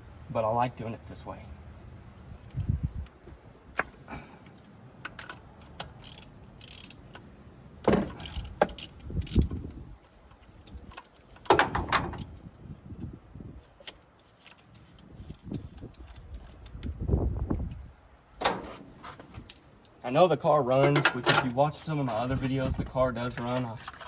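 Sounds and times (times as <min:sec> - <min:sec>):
socket ratchet clicking: 0:05.1 - 0:07.0.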